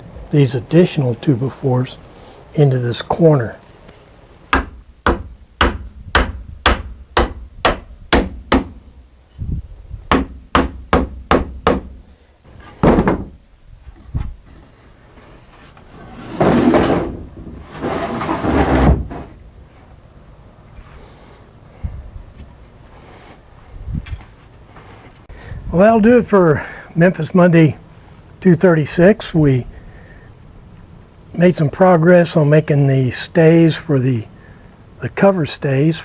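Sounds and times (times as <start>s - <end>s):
hammer striking wood: 4.5s - 8.8s, 10.1s - 12.0s, 12.8s - 13.4s
wood being shifted: 14.1s - 19.4s.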